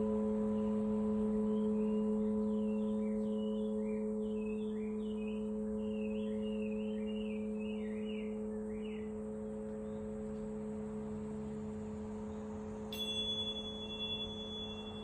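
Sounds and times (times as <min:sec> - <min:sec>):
high-pitched ringing tone: 0:00.0 - 0:15.0
singing bowl low tone: 0:00.0 - 0:15.0
bird chirping: 0:01.5 - 0:10.4, 0:12.2 - 0:15.0.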